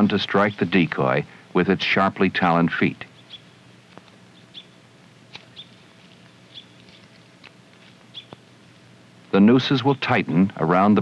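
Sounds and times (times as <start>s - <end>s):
low steady hum: 0.0s - 11.0s
bird chirping: 3.0s - 8.6s.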